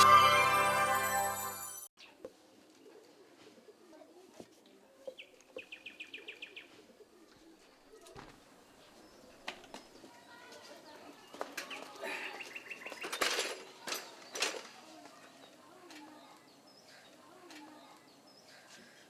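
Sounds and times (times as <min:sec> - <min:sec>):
birds chirping: 0:04.9 - 0:19.0.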